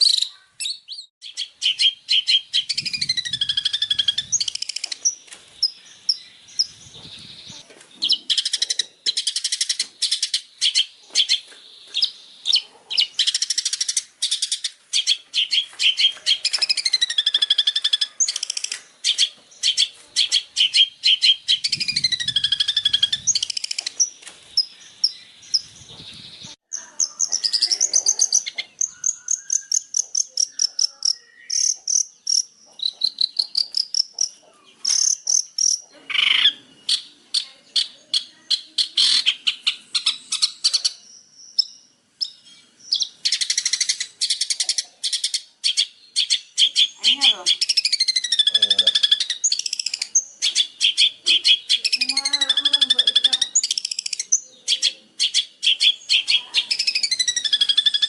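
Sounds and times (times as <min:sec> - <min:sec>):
whistled bird phrases: 0:00.0 - 0:05.0, 0:15.0 - 0:23.8, 0:25.6 - 0:31.8, 0:36.1 - 0:58.0.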